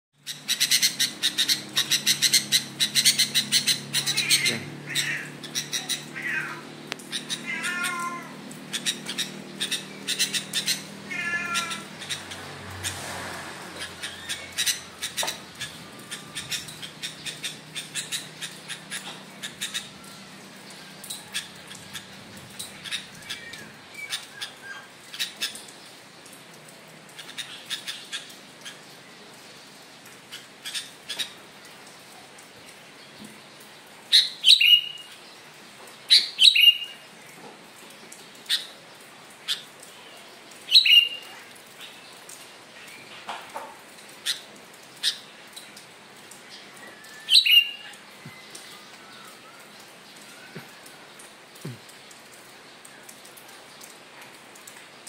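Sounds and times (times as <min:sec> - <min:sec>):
bulbul warbling calls: 0:08.7 - 0:12.4, 0:13.8 - 0:20.4, 0:34.1 - 0:35.0, 0:36.1 - 0:37.0, 0:40.7 - 0:41.3, 0:47.1 - 0:50.7.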